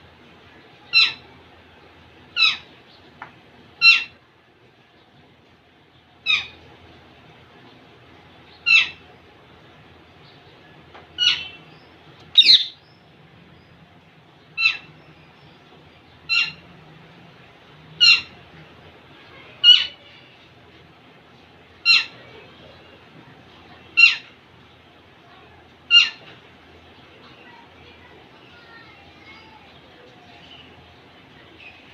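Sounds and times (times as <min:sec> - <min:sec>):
parakeet calls: 0:00.9 - 0:01.2, 0:02.4 - 0:02.7, 0:03.8 - 0:04.2, 0:06.2 - 0:06.6, 0:08.6 - 0:09.0, 0:11.2 - 0:11.7, 0:12.3 - 0:12.8, 0:14.6 - 0:15.0, 0:16.3 - 0:16.6, 0:18.0 - 0:18.4, 0:19.6 - 0:20.0, 0:21.8 - 0:22.2, 0:24.0 - 0:24.3, 0:25.9 - 0:26.3.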